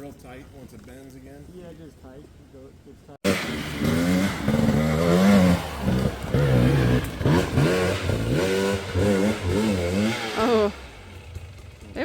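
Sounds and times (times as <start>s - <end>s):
dirt bike engine revving: 3.3s - 12.0s.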